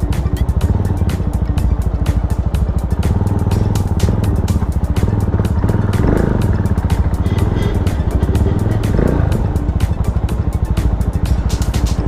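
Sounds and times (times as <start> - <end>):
single-cylinder engine running: 0.0 - 12.0.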